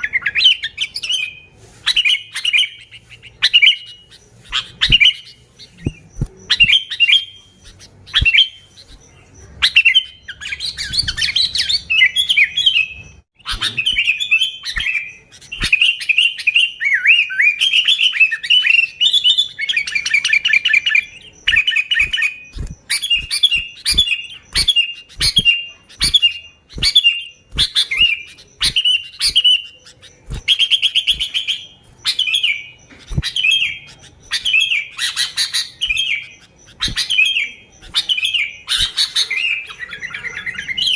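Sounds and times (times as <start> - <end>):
bird singing chirps and trills: 0.0 - 40.9.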